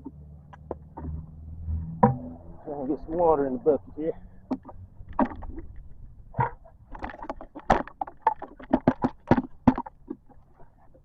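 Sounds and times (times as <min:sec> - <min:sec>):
bucket splashing in water: 0:04.4 - 0:10.4.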